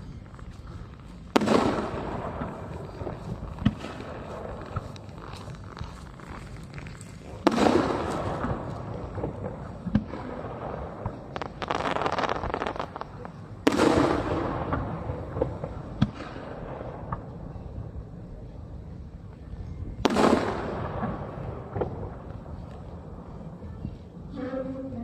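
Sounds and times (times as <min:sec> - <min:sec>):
fireworks crackling: 0:00.0 - 0:17.4, 0:20.0 - 0:23.8
fireworks booming: 0:01.3 - 0:17.4, 0:20.0 - 0:23.7.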